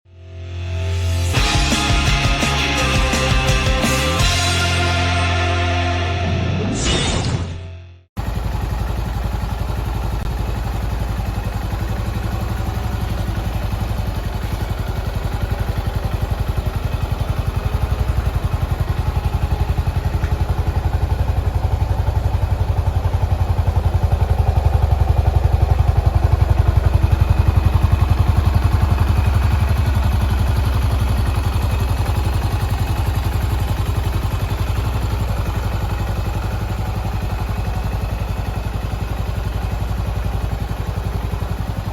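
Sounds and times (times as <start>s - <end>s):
motorcycle engine running: 1.0s - 6.6s, 8.2s - 41.9s.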